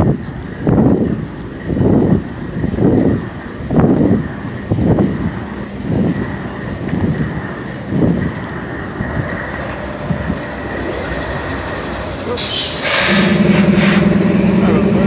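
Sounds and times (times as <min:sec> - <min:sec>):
diesel locomotive engine idling: 0:00.0 - 0:15.0
steady multi-tone hum: 0:00.0 - 0:15.0
air hiss burst: 0:12.4 - 0:14.2.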